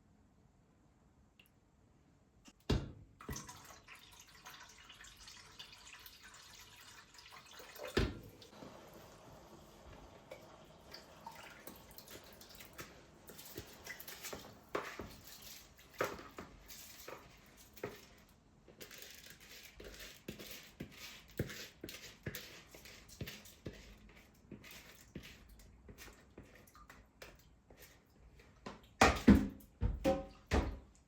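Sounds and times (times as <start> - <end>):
water dripping and trickling: 3.2 - 18.2, 21.4 - 31.0.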